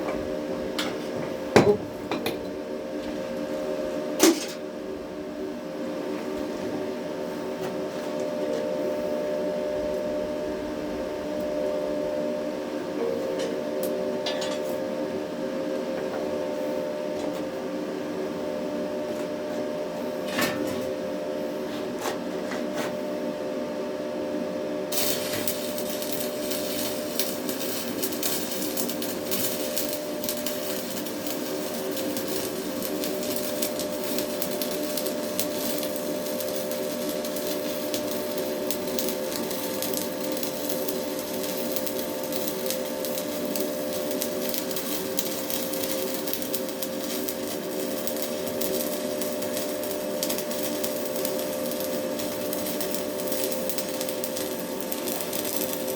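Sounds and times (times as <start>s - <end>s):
electrical hum: 0.0s - 55.9s
welding arc crackling and sizzling: 24.8s - 55.9s.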